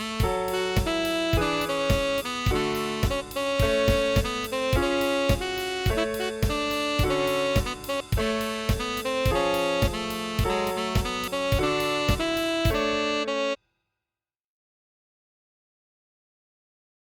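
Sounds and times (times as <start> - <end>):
drums with steady beat: 0.0 - 13.3
piano: 0.0 - 13.6
tenor saxophone melody: 0.0 - 13.6.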